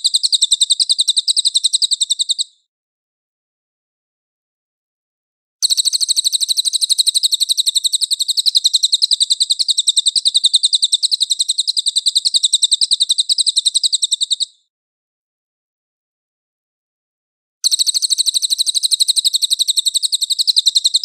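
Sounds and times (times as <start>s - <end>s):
songbird rapid trill: 0.0s - 2.7s, 5.6s - 14.7s, 17.6s - 21.0s.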